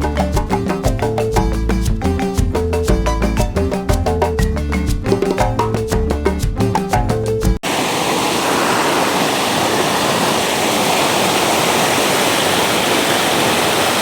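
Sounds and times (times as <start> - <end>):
water rushing over waterfall: 7.6 - 14.0.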